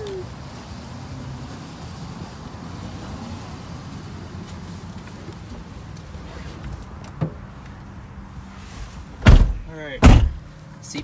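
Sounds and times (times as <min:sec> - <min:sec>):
truck door shutting: 0:09.2 - 0:10.5.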